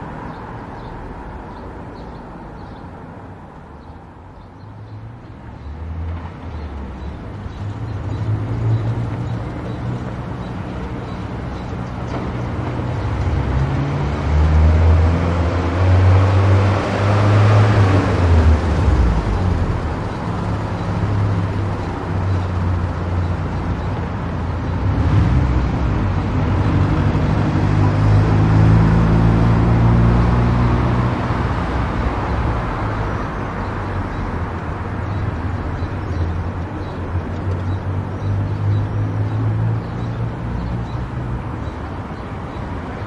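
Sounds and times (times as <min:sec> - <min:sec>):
tyre noise on road: 0:00.0 - 0:43.0
car engine: 0:11.8 - 0:35.6.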